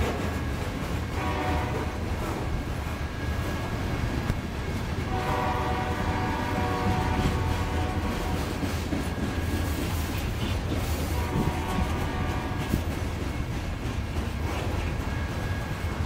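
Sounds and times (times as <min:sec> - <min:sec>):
freight cars rumbling on rails: 0:00.0 - 0:16.0
distant locomotive horn: 0:01.1 - 0:02.6, 0:05.0 - 0:09.8, 0:10.9 - 0:13.2.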